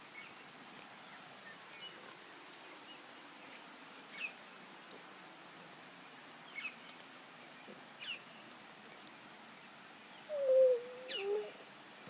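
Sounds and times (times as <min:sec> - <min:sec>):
faint high bird chirps: 0:10.3 - 0:11.6.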